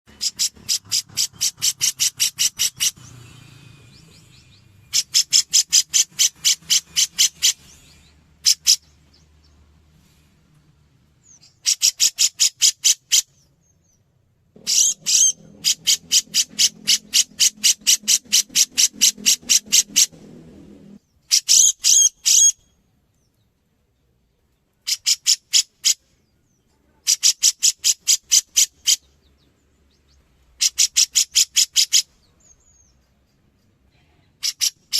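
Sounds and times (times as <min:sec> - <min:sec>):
low hum: 0:14.4 - 0:21.1.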